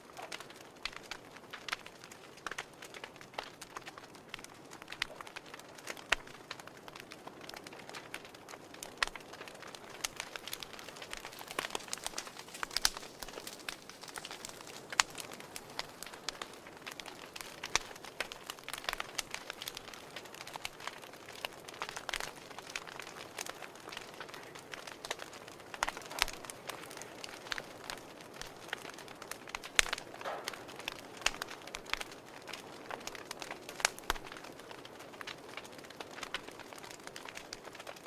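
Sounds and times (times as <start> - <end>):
fire crackling and popping: 0.0 - 38.0
soft steady hiss: 0.0 - 38.0.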